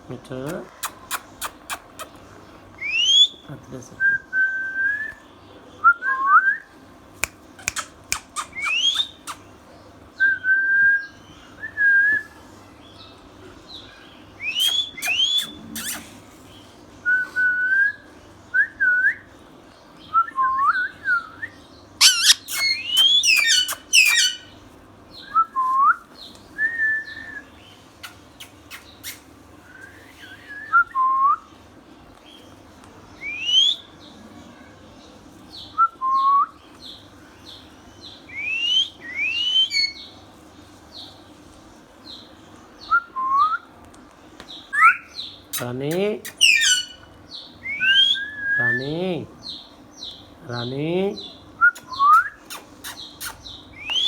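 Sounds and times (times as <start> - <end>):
parrot shrill clicking calls: 0.8 - 2.2, 7.2 - 9.4, 14.5 - 16.1, 22.0 - 24.5, 39.4 - 40.0, 44.8 - 47.1, 51.8 - 54.0
parrot whistling: 7.6 - 9.3, 14.4 - 16.0, 22.0 - 24.5, 38.4 - 40.0, 44.8 - 45.1, 46.3 - 48.6.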